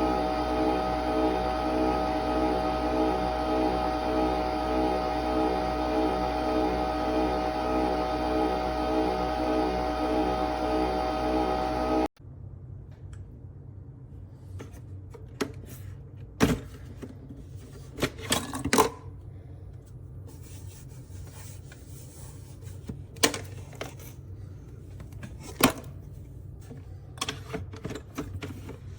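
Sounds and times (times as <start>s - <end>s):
coffee machine humming: 0.0s - 12.1s.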